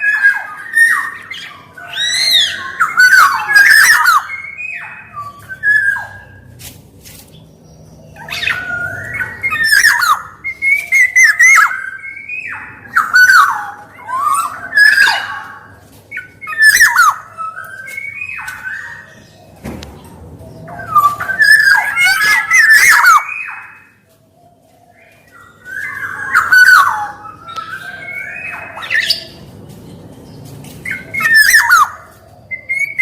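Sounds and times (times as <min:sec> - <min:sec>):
bird fluty whistled phrases: 0:08.2 - 0:19.1, 0:20.8 - 0:24.0, 0:25.4 - 0:29.4, 0:30.9 - 0:33.0
bird harsh squawks: 0:20.8 - 0:24.0, 0:30.8 - 0:33.0.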